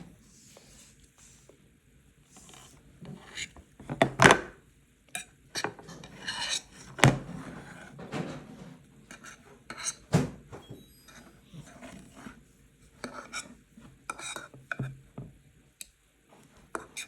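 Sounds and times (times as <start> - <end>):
cutlery scraping on a plate: 5.2 - 7.9, 9.1 - 10.1, 13.0 - 14.9, 16.8 - 17.0.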